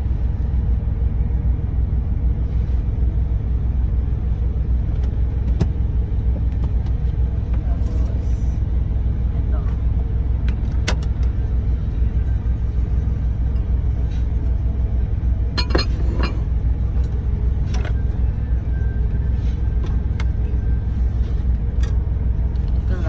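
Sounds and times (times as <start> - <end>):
truck rumble from inside cab: 0.0 - 23.0
kitchen items clinking: 15.6 - 16.4.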